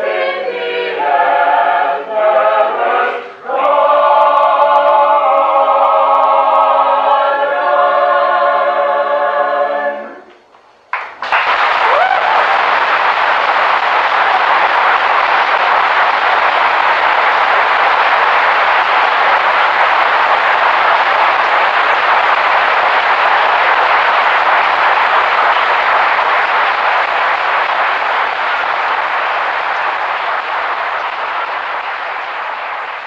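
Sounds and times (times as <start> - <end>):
audience applauding: 10.9 - 33.0.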